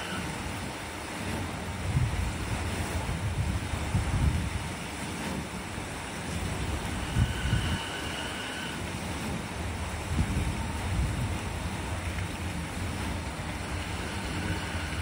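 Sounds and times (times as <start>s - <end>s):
wind buffeting microphone: 0.3s - 8.2s, 8.8s - 15.0s.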